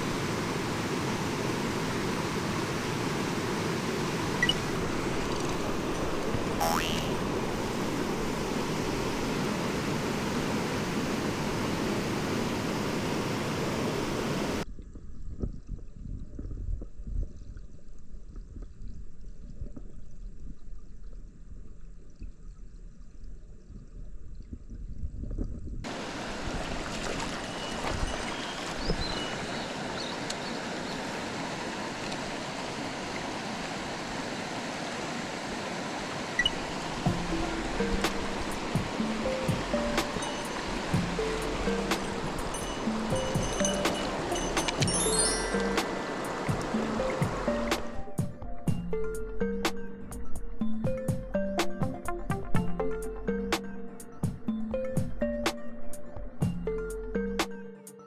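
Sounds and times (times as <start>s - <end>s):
mountain stream rushing over rocks: 0.0s - 14.6s, 25.9s - 48.3s.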